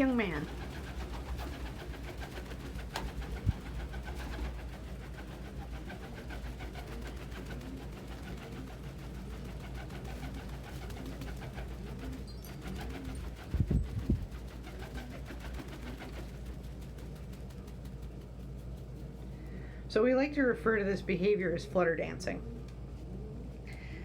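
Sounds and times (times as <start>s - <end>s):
pigeons cooing: 0.0s - 17.2s, 22.4s - 24.0s.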